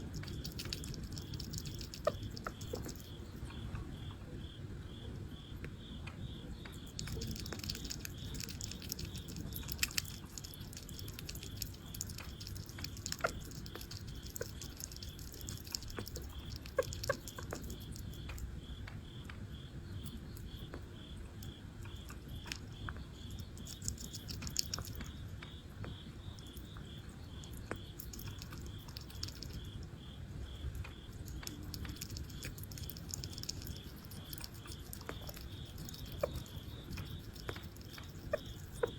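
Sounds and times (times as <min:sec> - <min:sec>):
small animal chewing and crunching: 0:00.0 - 0:38.9.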